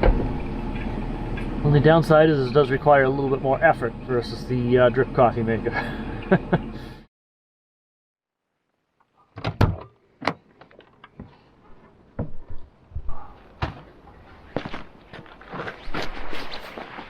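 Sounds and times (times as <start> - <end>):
clunks and knocks of gear: 9.4 - 14.0.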